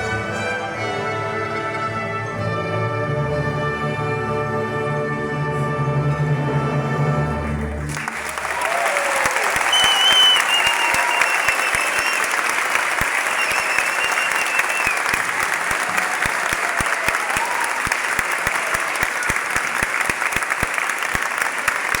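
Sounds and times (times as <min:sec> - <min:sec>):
audience applauding: 0:07.6 - 0:22.0.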